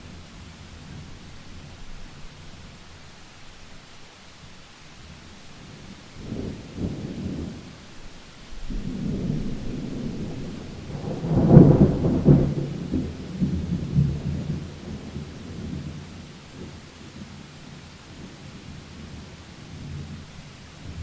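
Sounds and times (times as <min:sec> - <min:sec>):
steady rain: 0:00.0 - 0:21.0
thunder rumbling: 0:08.6 - 0:16.8.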